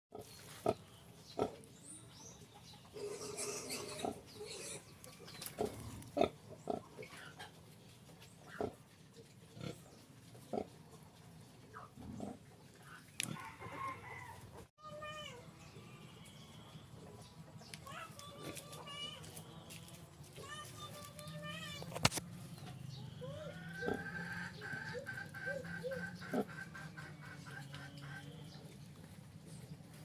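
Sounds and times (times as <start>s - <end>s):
pigs grunting and squealing: 2.9s - 7.6s, 8.5s - 8.9s, 9.5s - 10.8s, 11.8s - 13.4s, 23.4s - 28.7s.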